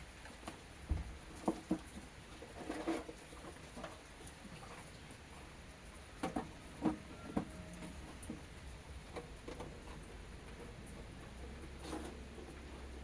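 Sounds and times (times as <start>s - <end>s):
seedling trays knocking and rustling: 0.4s - 4.0s, 6.2s - 13.0s.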